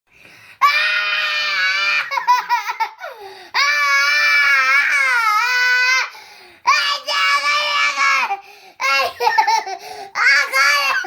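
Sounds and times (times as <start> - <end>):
child screaming: 0.6 - 2.8, 3.6 - 6.1, 6.7 - 9.6, 10.2 - 11.0.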